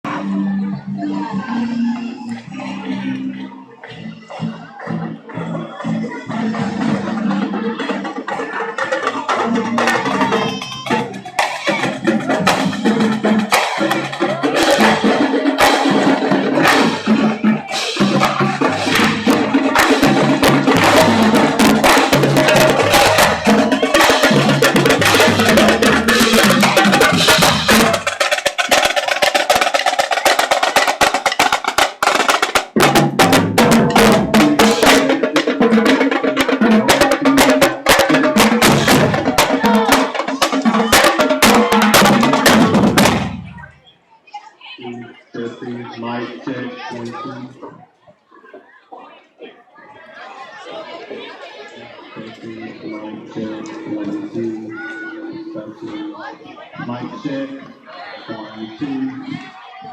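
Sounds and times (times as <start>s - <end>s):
sustained pitched instruments: 0.1s - 32.1s
fast drum hits: 8.3s - 43.7s.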